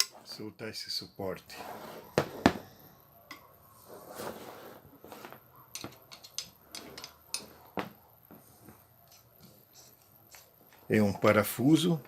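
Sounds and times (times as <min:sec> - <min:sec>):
tool parts clicking and knocking: 0:05.7 - 0:08.0.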